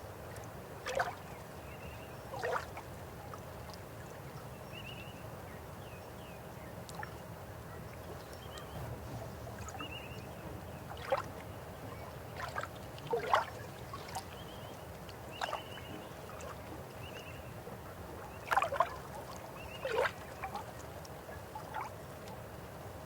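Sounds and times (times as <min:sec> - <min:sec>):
river water flowing: 0:00.1 - 0:01.7, 0:06.8 - 0:23.0
water gurgling and splashing: 0:12.3 - 0:14.2.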